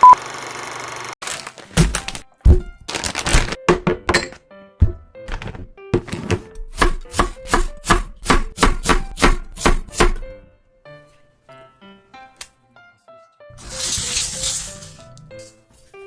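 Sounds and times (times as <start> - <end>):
crisp food crunching: 2.9 - 3.6.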